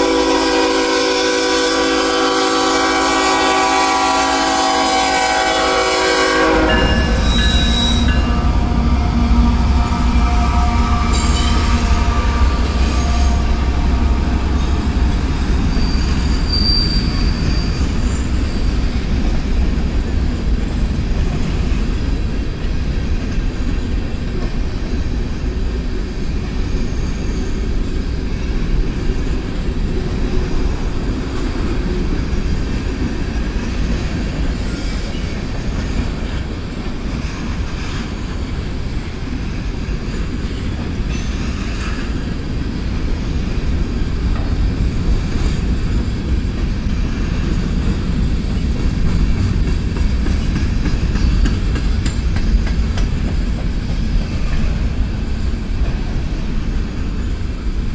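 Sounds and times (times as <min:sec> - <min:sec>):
diesel locomotive engine: 0:00.0 - 0:57.9
freight train rumbling past: 0:00.0 - 0:57.9
high wheel squeal: 0:06.6 - 0:13.6, 0:14.5 - 0:19.0, 0:26.6 - 0:27.8.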